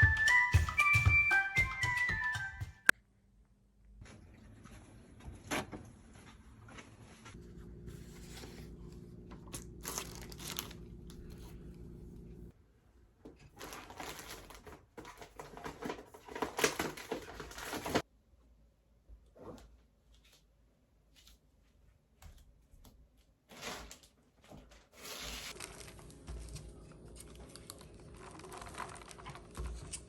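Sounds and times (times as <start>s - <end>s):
crinkling and rustling: 4.0s - 12.5s, 13.2s - 18.1s, 23.2s - 30.0s
steady low hum: 7.4s - 12.5s.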